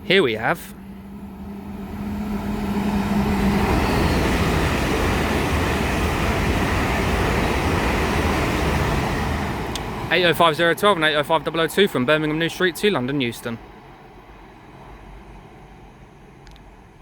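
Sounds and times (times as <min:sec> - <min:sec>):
low hum: 0:00.0 - 0:12.8
train passing: 0:00.0 - 0:17.0.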